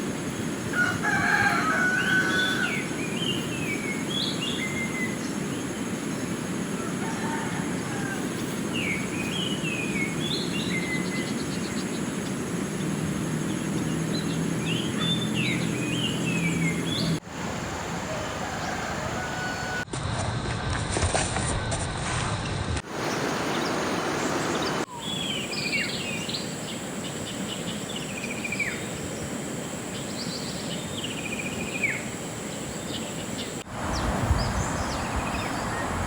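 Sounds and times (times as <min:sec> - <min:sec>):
river flowing: 0:00.0 - 0:19.8, 0:22.8 - 0:36.0
rooster crowing: 0:00.6 - 0:03.3, 0:06.7 - 0:08.9, 0:14.7 - 0:19.9, 0:33.8 - 0:36.0.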